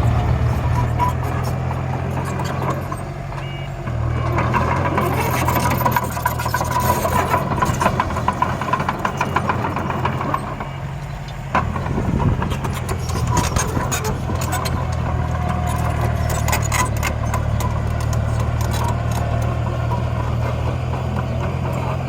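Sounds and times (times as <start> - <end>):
engine-like drone: 0.0 - 22.0
clattering rattle: 11.6 - 22.0.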